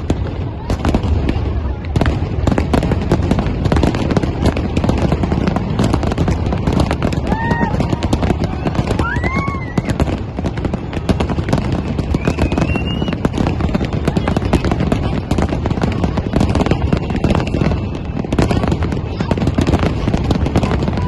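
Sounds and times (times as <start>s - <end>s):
firework bangs and crackling: 0.0s - 21.0s
high firework whistles: 6.8s - 14.4s.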